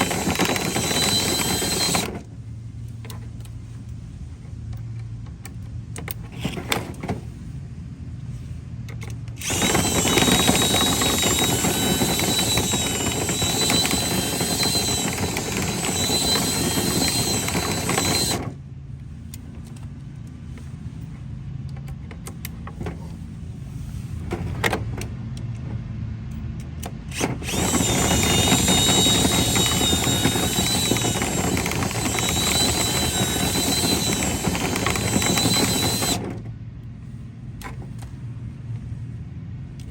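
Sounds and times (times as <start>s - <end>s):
power drill whining: 0.0s - 2.3s, 9.4s - 18.6s, 27.1s - 36.4s.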